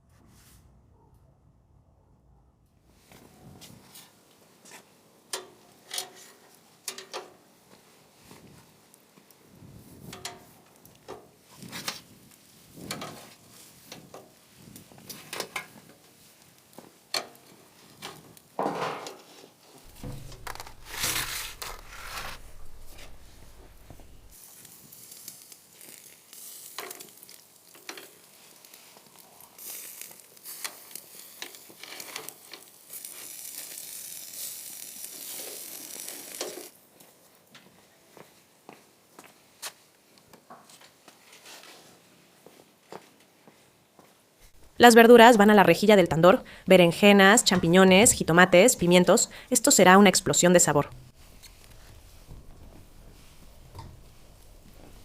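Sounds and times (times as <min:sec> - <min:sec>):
low hum: 0:00.0 - 0:02.9, 0:19.9 - 0:24.4
steady hiss: 0:19.8 - 0:27.6, 0:50.9 - 0:55.0.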